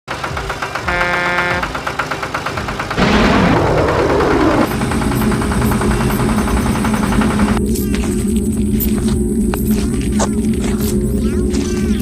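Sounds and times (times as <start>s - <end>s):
fast rhythmic pulsing: 0.2s - 12.0s
chord of steady tones: 0.7s - 7.6s
loud rumbling blast: 2.9s - 7.6s.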